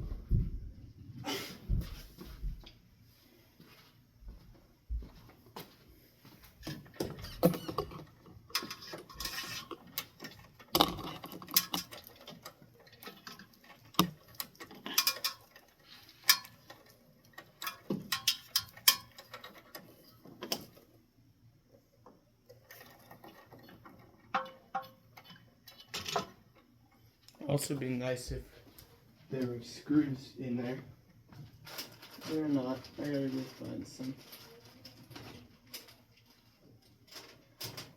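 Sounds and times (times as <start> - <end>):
clicks and rattles of hardware: 6.6 - 20.8, 22.5 - 27.0, 31.6 - 37.9.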